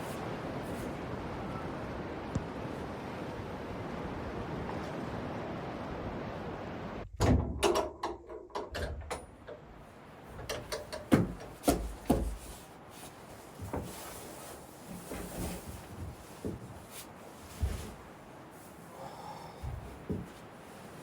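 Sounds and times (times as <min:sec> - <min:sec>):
sharp knocks and clicks: 0:07.2 - 0:09.7, 0:10.4 - 0:12.4.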